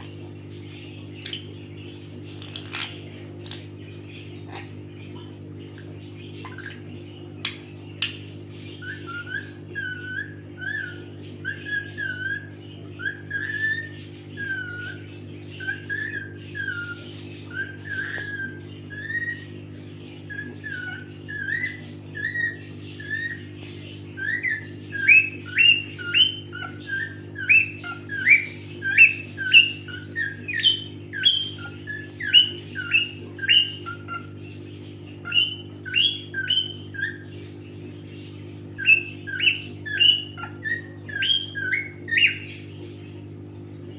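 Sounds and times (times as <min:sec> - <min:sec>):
steady low hum: 0:00.0 - 0:43.9
parrot whistled chirps: 0:08.8 - 0:19.5, 0:20.3 - 0:23.5, 0:24.2 - 0:34.4, 0:35.2 - 0:37.3, 0:38.8 - 0:42.5.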